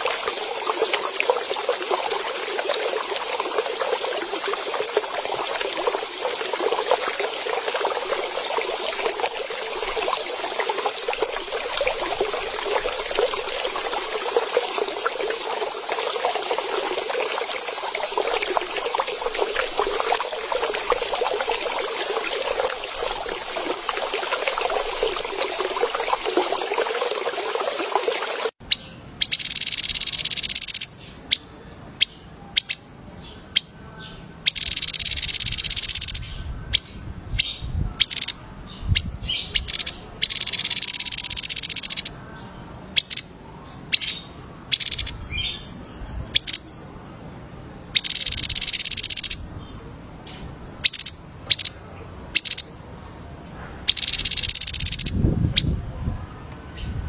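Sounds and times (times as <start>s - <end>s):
songbird buzzy trills: 0.0s - 27.7s, 28.6s - 57.0s
bird chirps: 28.6s - 57.0s.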